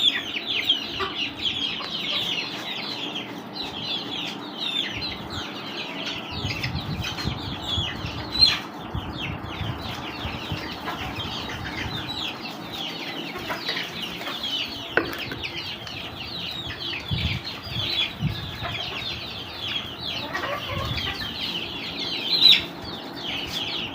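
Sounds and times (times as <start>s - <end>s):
chicks peeping: 0.0s - 23.9s
hens clucking: 0.0s - 23.9s
sharp knocks: 14.9s - 15.5s.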